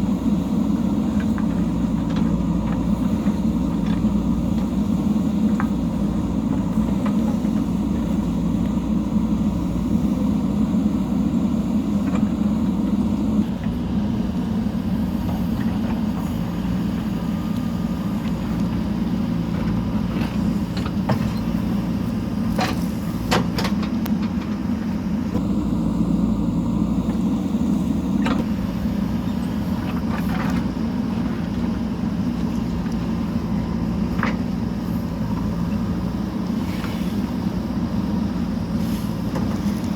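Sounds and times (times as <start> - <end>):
backhoe diesel engine running: 0.0 - 39.9.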